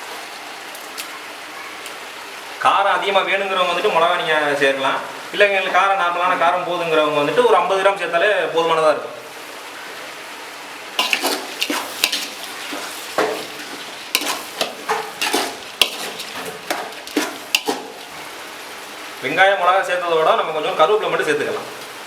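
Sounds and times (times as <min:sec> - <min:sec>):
food sizzling in hot oil: 0:10.5 - 0:19.4
spoon scraping a pan: 0:11.0 - 0:18.2.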